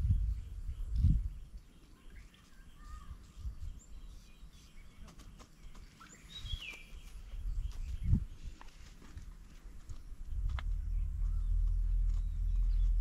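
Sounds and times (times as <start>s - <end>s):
low bumps: 9.1s - 13.0s.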